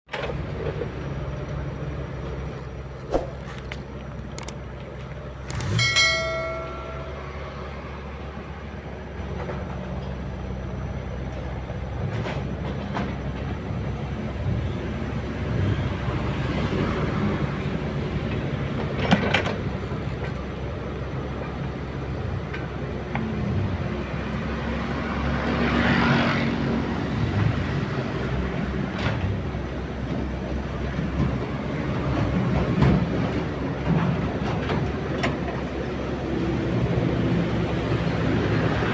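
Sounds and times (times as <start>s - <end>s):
excavator diesel engine running: 0.1s - 25.0s
brief high tone: 5.7s - 7.9s.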